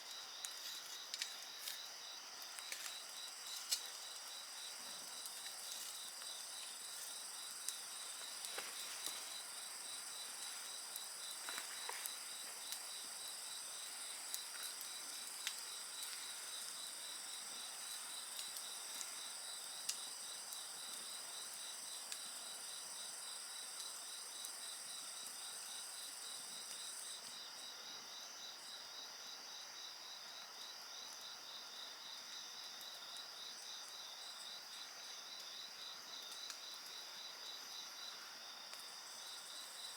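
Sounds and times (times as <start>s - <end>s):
wood fire crackling: 0.0s - 25.5s
insects trilling and chirping: 0.0s - 39.9s
rapid pulsing insect chirp: 0.0s - 39.9s.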